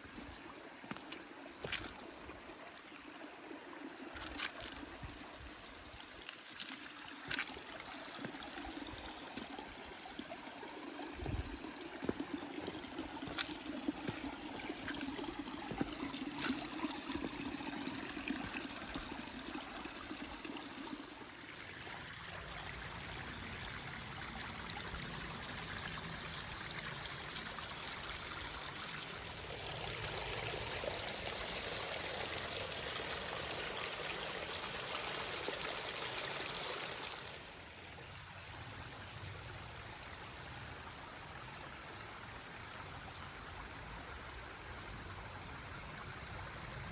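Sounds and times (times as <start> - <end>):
stream water trickling: 0.0 - 46.9.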